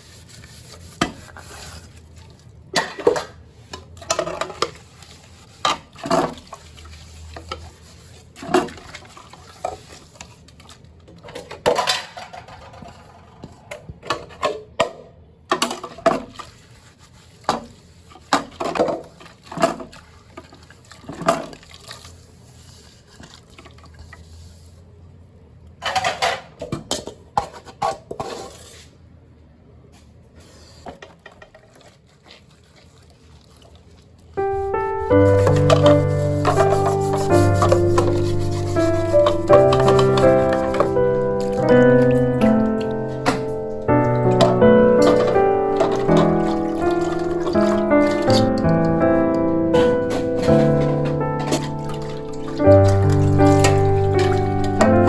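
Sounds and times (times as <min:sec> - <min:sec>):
water sounds: 0:34.4 - 0:55.0
dishes and cutlery clinking: 0:35.3 - 0:43.6, 0:44.2 - 0:48.4.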